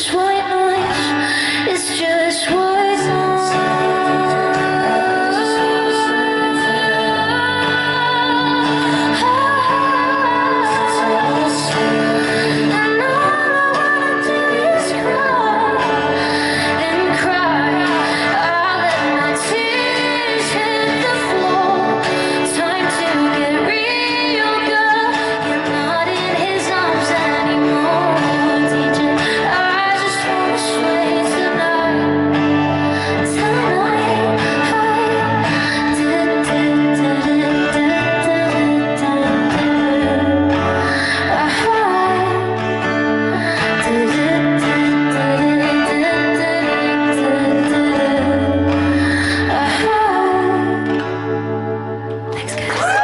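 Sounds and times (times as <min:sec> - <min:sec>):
woman singing a pop song: 0:00.0 - 0:53.0.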